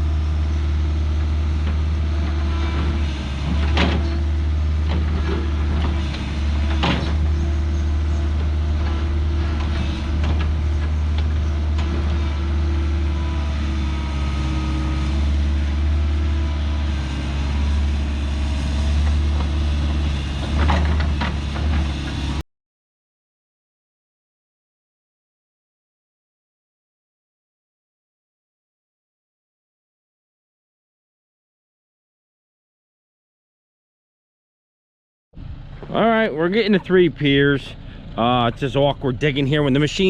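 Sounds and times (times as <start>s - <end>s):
excavator engine running: 0.0s - 22.4s, 35.4s - 40.0s.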